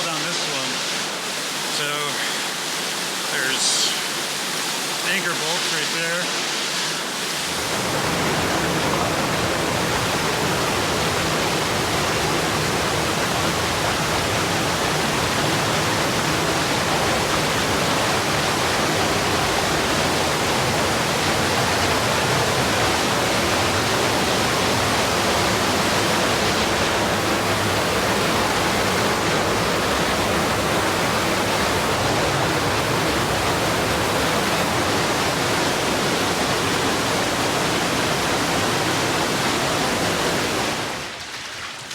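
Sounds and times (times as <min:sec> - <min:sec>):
waterfall rushing: 0:00.0 - 0:41.2.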